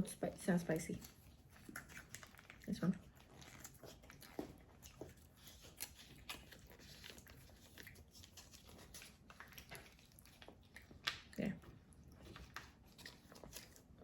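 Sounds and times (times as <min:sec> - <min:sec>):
chewing crackers: 0:00.9 - 0:14.0.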